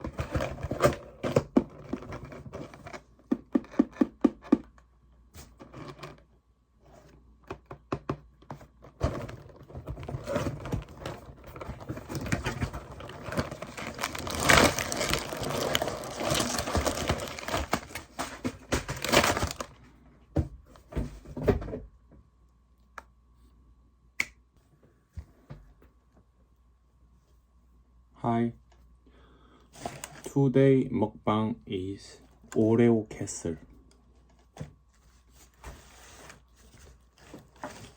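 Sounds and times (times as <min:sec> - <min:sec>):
packaging tearing and crinkling: 0:10.1 - 0:19.7.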